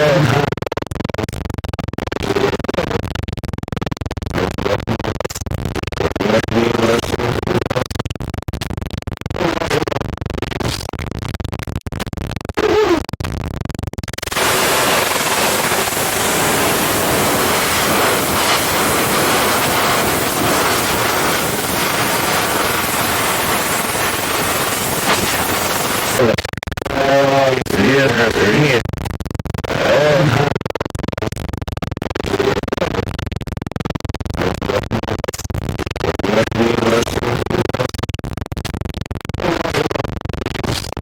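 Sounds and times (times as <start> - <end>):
white noise hiss: 14.3 - 26.3
television static crackling: 14.3 - 26.4.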